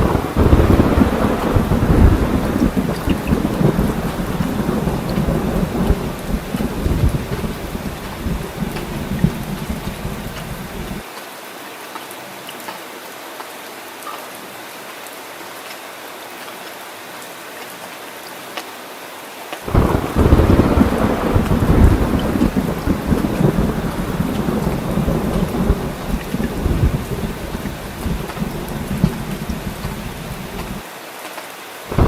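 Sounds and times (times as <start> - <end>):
rolling thunder: 0.0 - 11.0, 19.7 - 30.8
heavy rain: 0.0 - 32.0.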